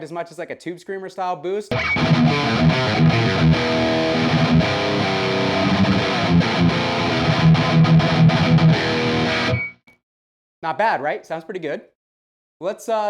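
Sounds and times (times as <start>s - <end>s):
distorted electric guitar riff: 1.7s - 9.8s.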